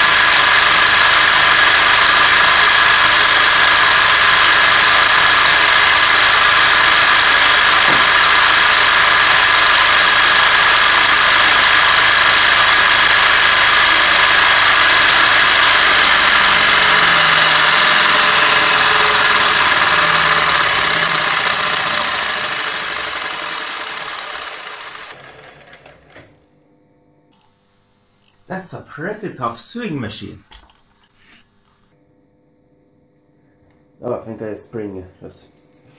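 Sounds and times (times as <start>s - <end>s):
electric motor whining with rattle: 0.0s - 26.4s.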